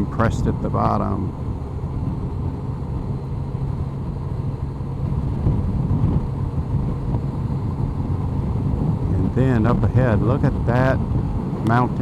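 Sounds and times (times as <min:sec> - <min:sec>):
road and wind rumble: 0:00.0 - 0:12.0
motorcycle engine running: 0:11.3 - 0:12.0.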